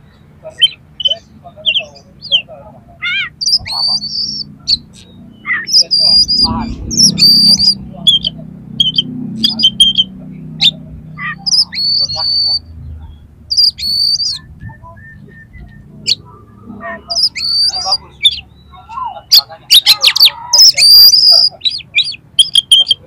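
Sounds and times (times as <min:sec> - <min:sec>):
bird singing whistles and clicks: 0:07.0 - 0:10.8, 0:13.5 - 0:16.2, 0:19.7 - 0:23.0.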